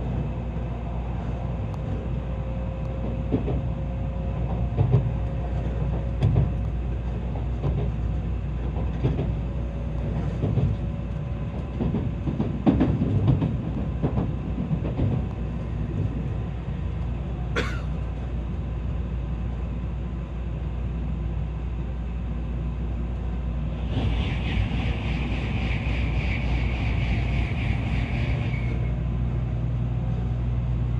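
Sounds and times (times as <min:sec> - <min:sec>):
train rumbling at speed: 0:00.0 - 0:30.9
wheels knocking on track: 0:07.3 - 0:10.8, 0:11.6 - 0:16.2.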